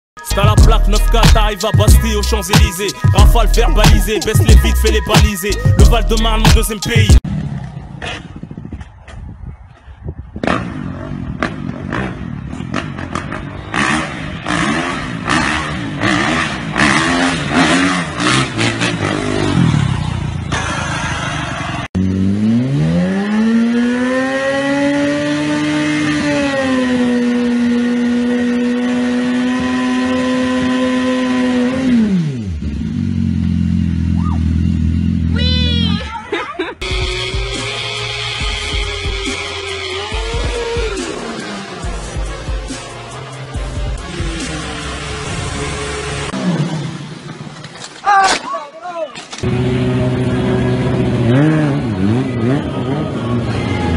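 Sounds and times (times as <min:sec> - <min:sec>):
motorcycle engine revving: 0:07.1 - 0:09.0, 0:10.4 - 0:35.9, 0:36.8 - 0:47.8, 0:49.4 - 0:53.9.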